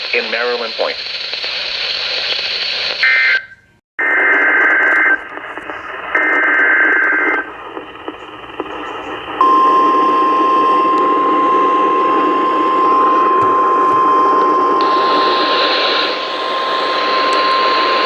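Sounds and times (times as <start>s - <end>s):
radio static hiss: 0.0s - 18.0s
steady warning alarm tone: 9.4s - 18.0s.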